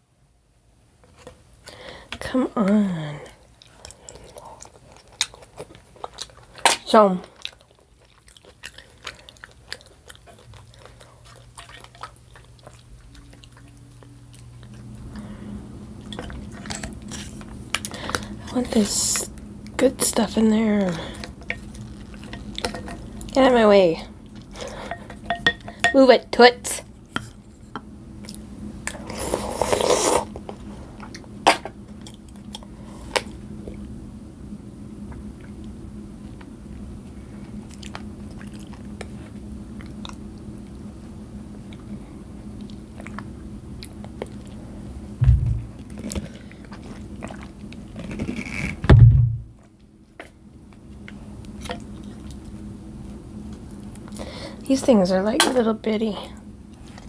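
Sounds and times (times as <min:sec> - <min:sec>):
low steady hum: 0:00.0 - 0:57.0
quiet chewing: 0:01.0 - 0:18.6, 0:35.1 - 0:40.9, 0:41.5 - 0:44.9, 0:45.8 - 0:48.8, 0:56.2 - 0:57.0
chewing and biting: 0:07.3 - 0:15.1, 0:37.4 - 0:40.8, 0:45.9 - 0:48.8.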